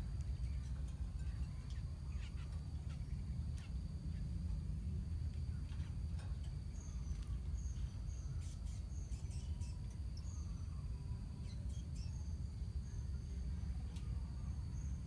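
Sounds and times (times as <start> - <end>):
steady low rumble: 0.0 - 8.5.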